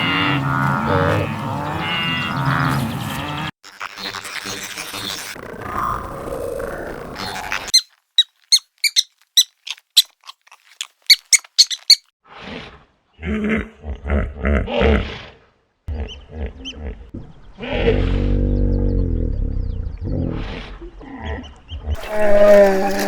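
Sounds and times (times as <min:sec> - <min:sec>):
animal growling calls: 0:00.0 - 0:03.5, 0:11.8 - 0:23.0
high-pitched animal squeaks: 0:07.2 - 0:12.1.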